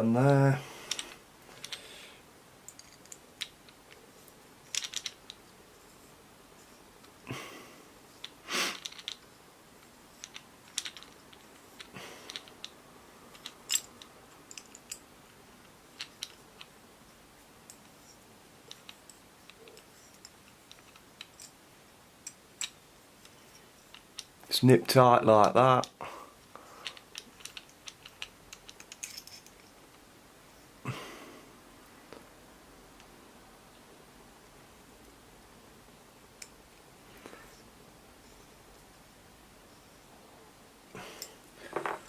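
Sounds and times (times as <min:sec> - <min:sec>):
clamp screws clicking and scraping: 0:26.8 - 0:29.7.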